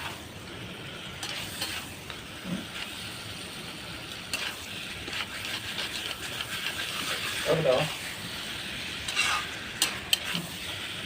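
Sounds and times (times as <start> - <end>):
curry sizzling in a pan: 0.0 - 11.0
spoon stirring clicks and scrapes: 4.3 - 7.5, 9.0 - 10.5.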